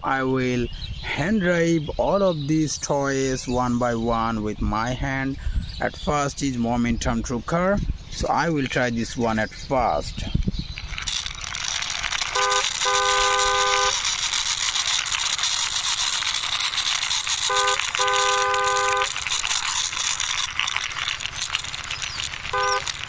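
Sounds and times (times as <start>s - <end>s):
two-note vehicle horn honking: 12.4s - 14.0s, 17.4s - 19.1s, 22.5s - 23.0s.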